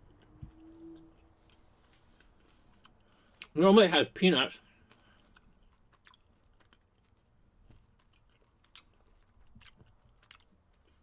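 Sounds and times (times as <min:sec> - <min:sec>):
chewing: 0:00.0 - 0:03.6, 0:04.8 - 0:11.0.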